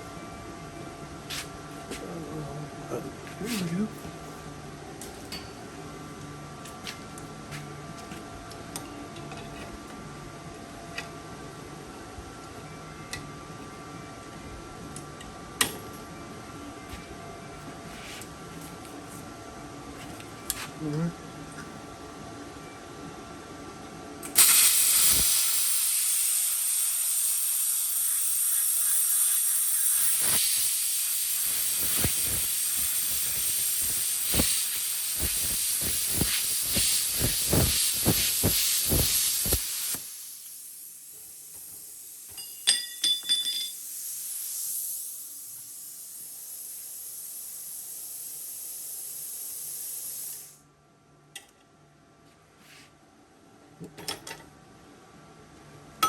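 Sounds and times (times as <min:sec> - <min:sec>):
post-flow air hiss: 0:24.3 - 0:42.4, 0:43.0 - 0:50.8
plasma cutter hissing and crackling: 0:24.4 - 0:42.3, 0:43.7 - 0:50.6.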